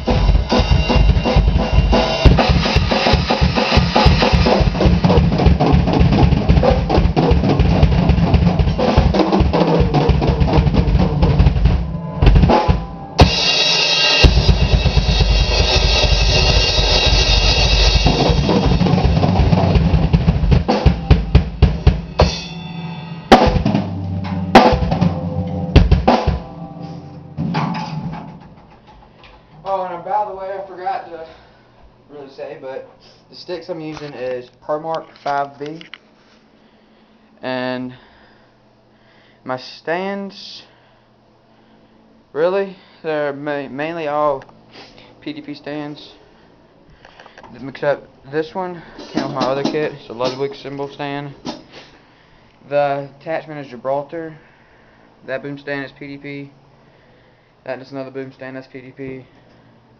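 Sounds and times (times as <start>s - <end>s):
cymbal wash: 0.0s - 5.2s, 11.5s - 19.8s, 20.7s - 27.6s
drum kit solo: 0.0s - 28.8s, 49.0s - 50.6s.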